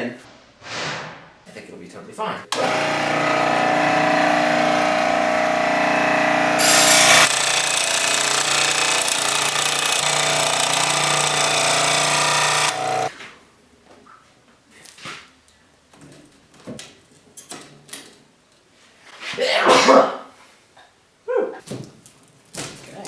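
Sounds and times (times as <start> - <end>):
scroll saw cutting plastic: 2.5 - 13.1.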